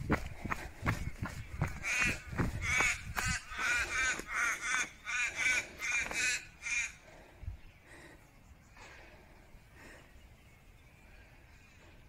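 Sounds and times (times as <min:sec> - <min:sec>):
crow-like bird cawing: 0:01.8 - 0:07.0.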